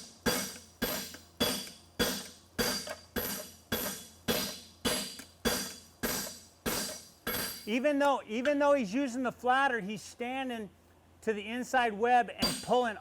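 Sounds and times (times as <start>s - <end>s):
hammer ringing on metal anvil: 0.2s - 7.7s, 12.4s - 12.8s.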